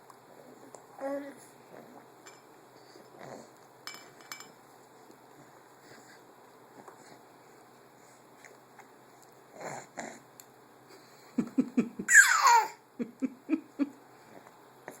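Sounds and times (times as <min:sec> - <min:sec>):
soft breaths: 0:04.8 - 0:10.3, 0:14.0 - 0:15.0
person laughing: 0:11.4 - 0:12.2, 0:13.0 - 0:14.0.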